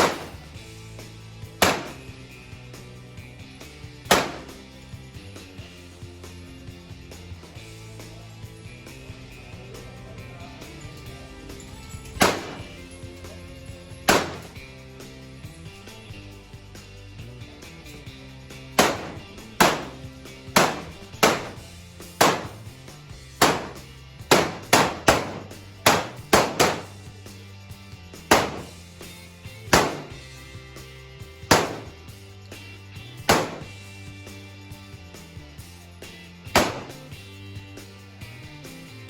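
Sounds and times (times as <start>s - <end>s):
gunshots with echo: 0.0s - 0.5s, 1.6s - 2.1s, 4.1s - 4.6s, 12.2s - 12.8s, 14.1s - 14.6s, 18.8s - 20.0s, 20.6s - 22.7s, 23.4s - 27.0s, 28.3s - 28.8s, 29.8s - 30.2s, 31.5s - 32.0s, 33.3s - 33.8s, 36.6s - 37.1s
background music: 0.0s - 39.0s.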